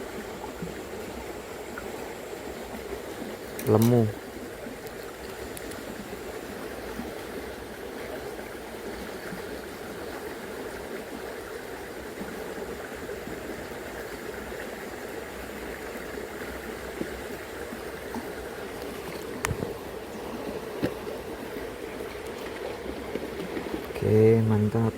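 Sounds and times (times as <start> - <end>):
river current rushing: 15.1 - 24.9.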